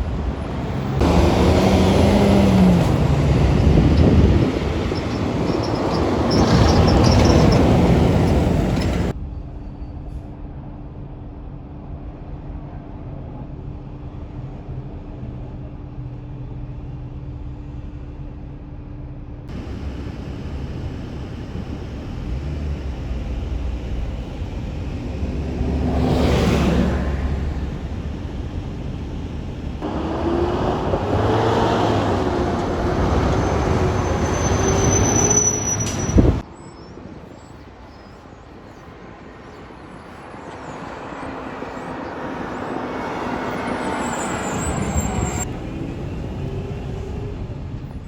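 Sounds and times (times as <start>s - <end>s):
vehicle passing: 0.0s - 9.1s, 19.5s - 36.4s
truck engine droning: 0.0s - 9.2s, 19.5s - 36.4s
truck passing by: 0.0s - 9.2s, 19.5s - 36.5s, 39.1s - 48.0s.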